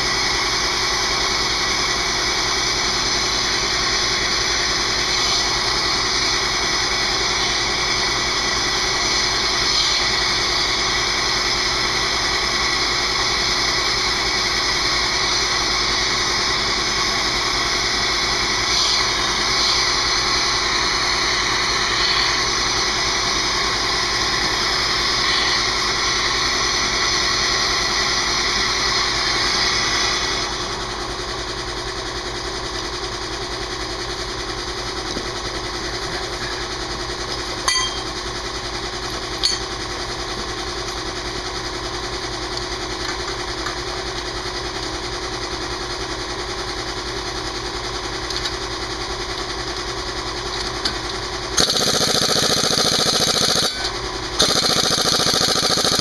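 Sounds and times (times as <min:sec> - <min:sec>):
air compressor running: 0:00.0 - 0:56.0
air impact wrench hammering: 0:51.6 - 0:56.0.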